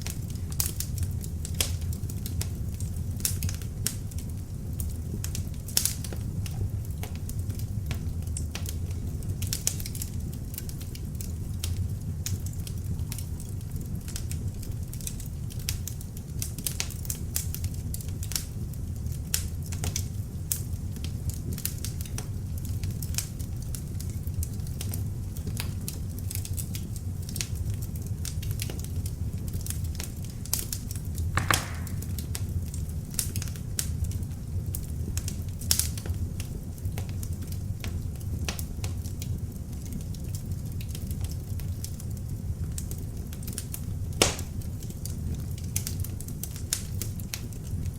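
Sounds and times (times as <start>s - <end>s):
fire crackling and popping: 0.0s - 47.9s
fire rushing: 31.4s - 32.6s.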